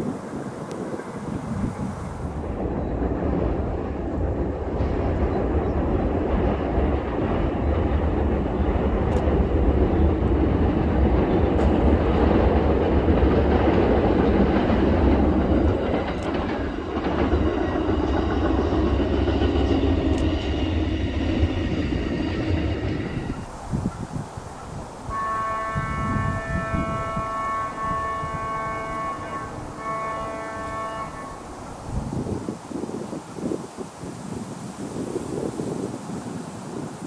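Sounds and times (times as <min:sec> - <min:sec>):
train rumbling over steel bridge: 0:00.0 - 0:37.0
train wheels clattering on rails: 0:02.3 - 0:24.8.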